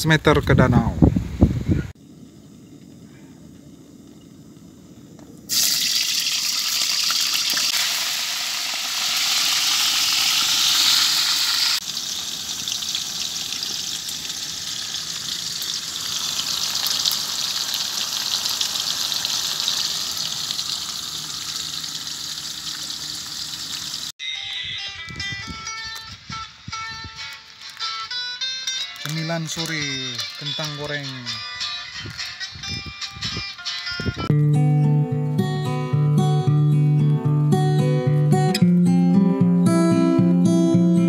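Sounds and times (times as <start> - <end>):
potatoes frying in hot oil: 5.5 - 24.1.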